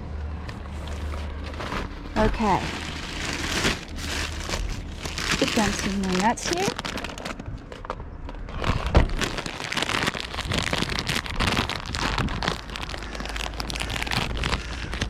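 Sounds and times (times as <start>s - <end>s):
wind rumble on microphone: 0.0s - 15.0s
rustling handling noise: 0.2s - 15.0s.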